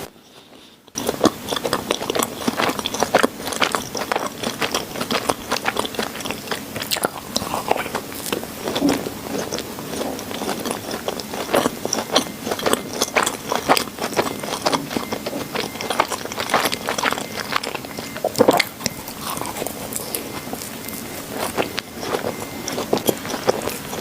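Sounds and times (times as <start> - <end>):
chewing with wet mouth smacks: 0.2 - 24.0.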